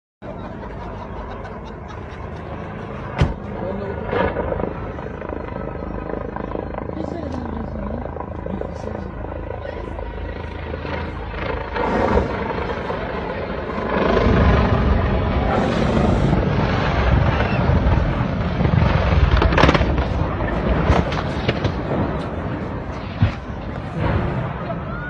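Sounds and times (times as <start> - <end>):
helicopter engine and rotor: 0.2 - 25.0
sharp crack: 18.6 - 24.4.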